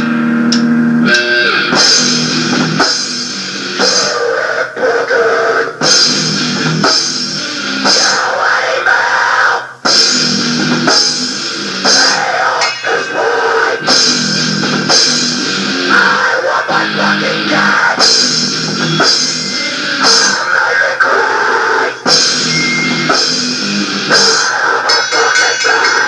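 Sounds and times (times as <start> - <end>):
heavy rock band playing: 0.0 - 26.0
cymbal crashes: 1.7 - 4.2, 9.8 - 15.9, 18.0 - 20.5, 22.0 - 26.0.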